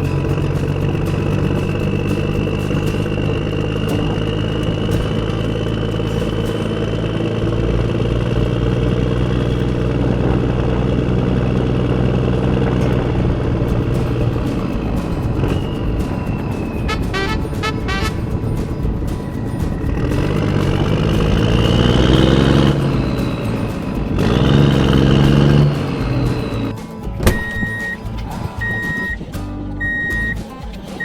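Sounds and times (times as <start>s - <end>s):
engine-like hum: 0.0s - 31.0s.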